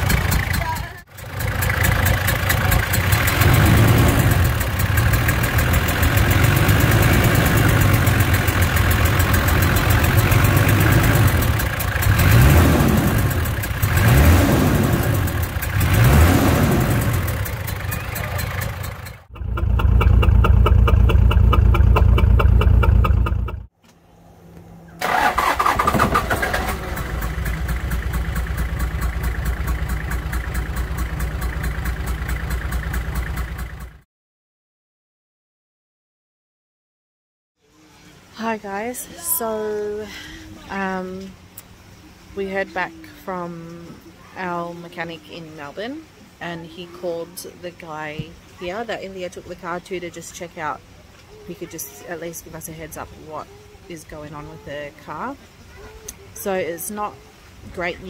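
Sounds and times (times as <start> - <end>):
rapid ticking from engine: 0.0 - 23.7, 25.0 - 34.0
car engine idling and revving: 0.0 - 34.1.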